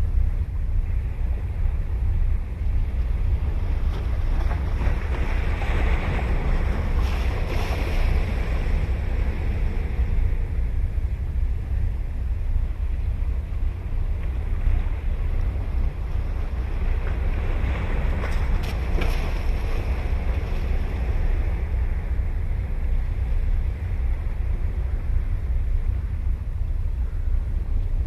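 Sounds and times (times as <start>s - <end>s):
wind rumbling on microphone: 0.0s - 28.0s
ocean surf breaking: 3.3s - 11.5s, 13.3s - 25.3s.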